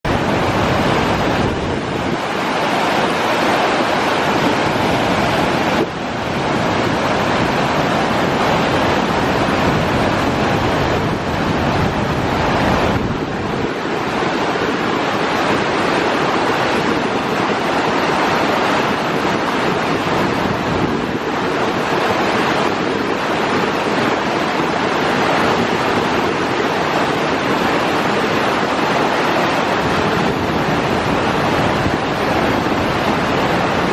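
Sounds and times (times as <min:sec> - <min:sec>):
waterfall crashing over rocks: 0:00.1 - 0:33.9.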